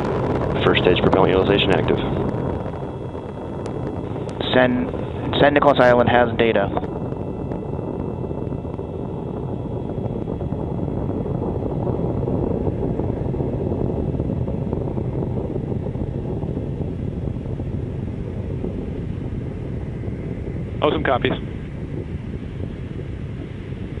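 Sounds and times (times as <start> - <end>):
rocket engines rumbling: 0.0 - 24.0.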